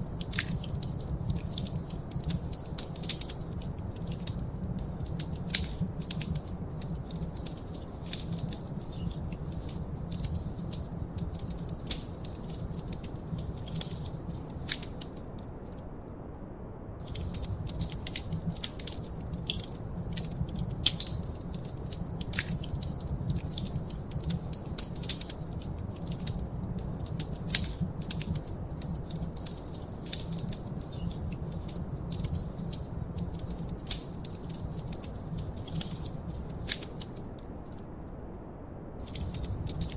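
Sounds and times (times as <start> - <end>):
wood fire crackling: 0.0 - 15.8, 17.0 - 38.0, 39.0 - 39.9.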